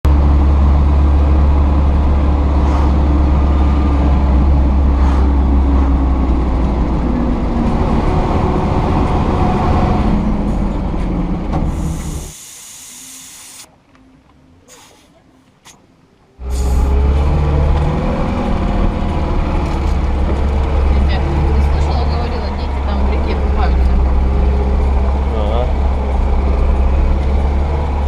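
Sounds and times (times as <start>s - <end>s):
car engine low rumble: 0.0s - 12.4s, 13.0s - 28.0s
short high hiss: 14.7s - 15.1s, 16.5s - 17.0s.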